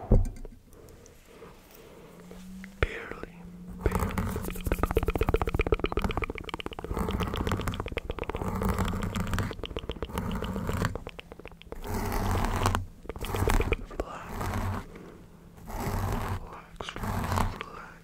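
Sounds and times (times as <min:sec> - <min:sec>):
wet mouth clicks: 0:03.8 - 0:14.9, 0:15.7 - 0:18.0.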